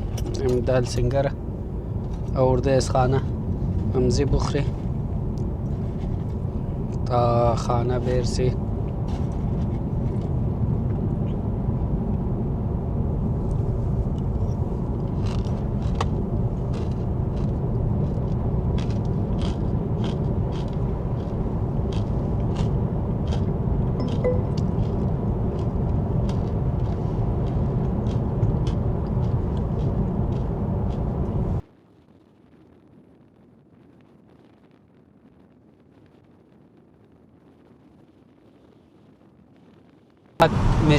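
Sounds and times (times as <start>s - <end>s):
car road rumble: 0.0s - 31.7s, 40.4s - 40.9s.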